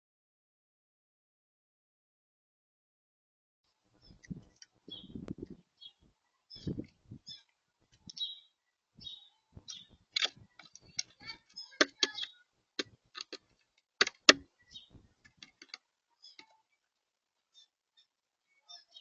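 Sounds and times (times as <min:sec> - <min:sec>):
birds pecking on feeder: 0:03.9 - 0:08.4, 0:09.0 - 0:16.6.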